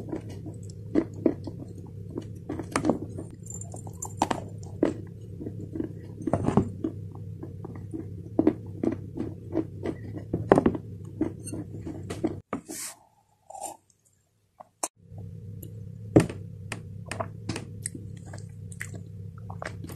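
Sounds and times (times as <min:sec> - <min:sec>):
person chewing crunchy clay: 0:00.0 - 0:12.5, 0:17.0 - 0:19.9
steady low hum: 0:00.0 - 0:12.5, 0:14.8 - 0:19.9.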